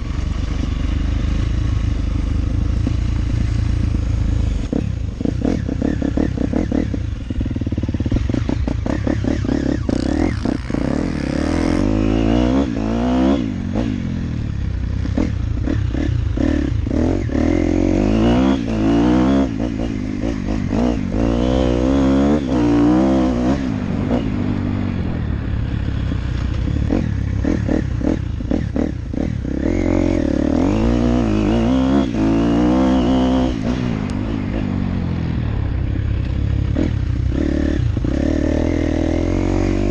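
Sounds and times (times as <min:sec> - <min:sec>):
dirt bike engine revving: 0:00.0 - 0:35.4, 0:36.6 - 0:39.9.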